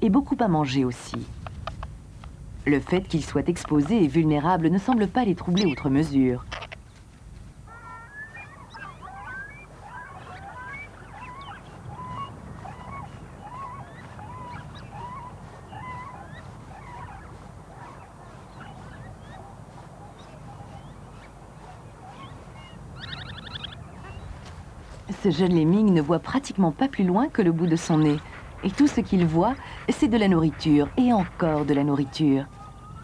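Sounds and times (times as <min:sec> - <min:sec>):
wild birds chirping: 0:00.0 - 0:33.0
harsh bird call: 0:07.7 - 0:24.4.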